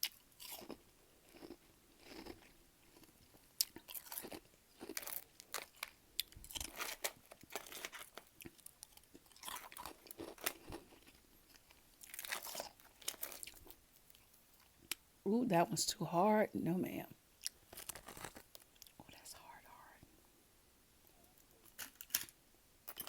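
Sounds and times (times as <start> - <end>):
chewing frost crunches: 0.0 - 14.8, 17.4 - 19.0.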